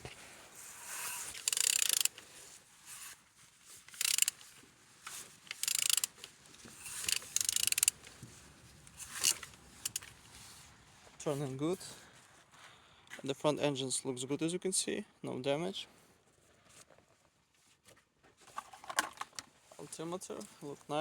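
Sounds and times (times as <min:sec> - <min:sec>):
ratchet wrench clicking: 0:00.8 - 0:02.2, 0:03.9 - 0:04.4, 0:05.5 - 0:08.1, 0:09.0 - 0:10.1.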